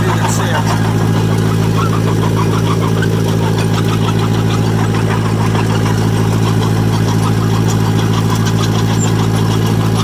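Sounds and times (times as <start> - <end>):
dozer engine running: 0.0 - 10.0
light engine clatter: 0.0 - 10.0.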